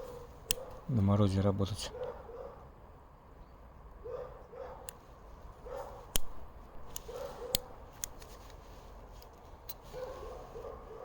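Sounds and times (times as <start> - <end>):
faint dog barking: 0.0 - 0.9, 1.8 - 2.7, 4.0 - 4.9, 5.6 - 6.1, 7.1 - 7.8, 9.9 - 11.0.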